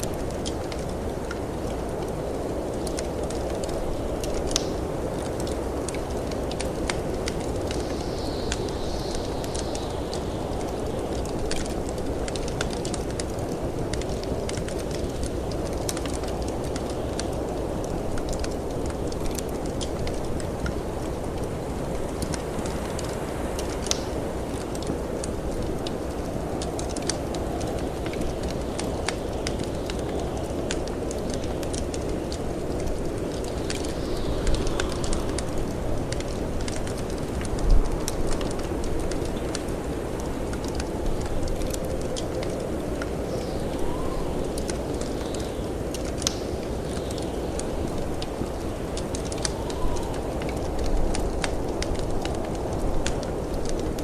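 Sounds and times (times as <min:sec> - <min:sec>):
snowstorm wind rumble: 0:00.0 - 0:54.0
wood fire crackling: 0:00.0 - 0:54.0
high wind whistle: 0:43.6 - 0:44.5, 0:49.5 - 0:50.4.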